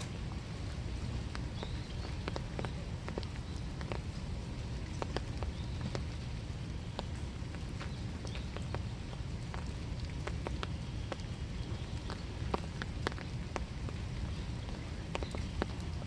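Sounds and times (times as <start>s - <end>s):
low rumbling background: 0.0s - 16.0s
steady rain: 0.0s - 16.0s
drops tapping and plinking: 1.3s - 4.1s.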